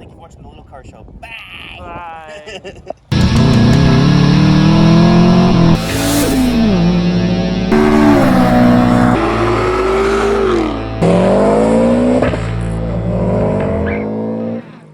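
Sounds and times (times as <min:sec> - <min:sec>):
car engines revving: 0:03.1 - 0:14.9.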